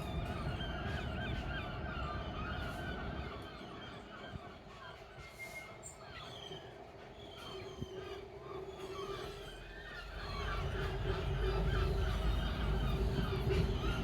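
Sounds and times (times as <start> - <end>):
freight train rumbling past: 10.0 - 14.0.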